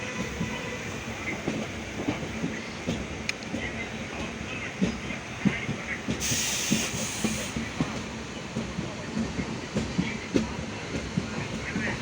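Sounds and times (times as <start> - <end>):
train carriage rumble: 0.0 - 12.0
hiss: 6.2 - 7.8.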